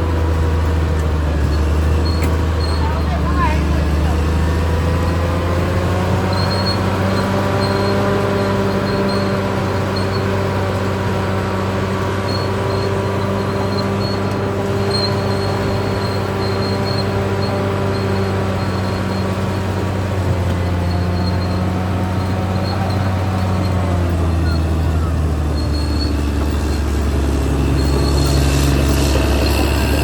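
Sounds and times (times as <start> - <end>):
bulldozer diesel engine hum: 0.0 - 30.0
faint high-pitched squeak: 6.1 - 10.8, 12.2 - 19.4, 20.4 - 30.0.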